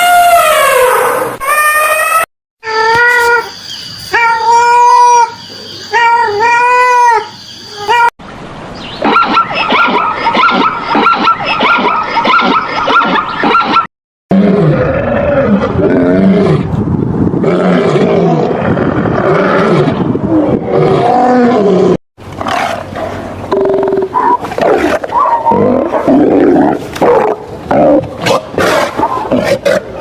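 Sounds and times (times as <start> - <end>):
big cat growling and roaring: 14.3 - 16.8, 17.4 - 30.0
animal calls and grunts: 17.5 - 30.0.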